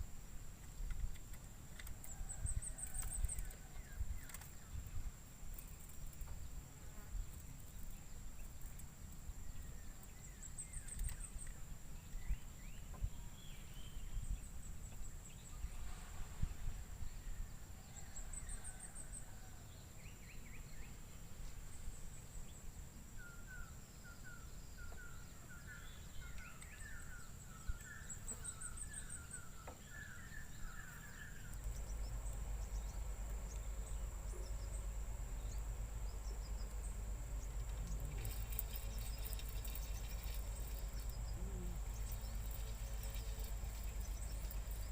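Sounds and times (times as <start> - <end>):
birds chirping: 23.2 - 44.9
high-pitched insect drone: 37.4 - 44.9.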